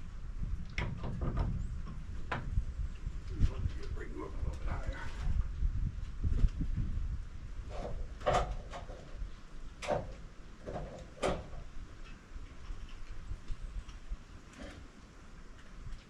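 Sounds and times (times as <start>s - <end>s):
log knocking and sliding on sawmill bed: 7.6s - 13.6s.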